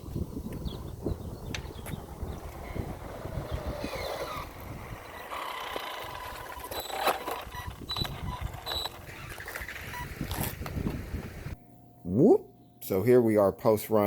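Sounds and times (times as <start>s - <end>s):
rc car motor whine: 1.7s - 11.6s.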